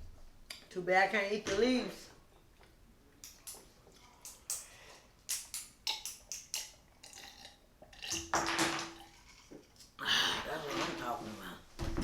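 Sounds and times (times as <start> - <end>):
person chewing with wet smacks: 3.2 - 8.1.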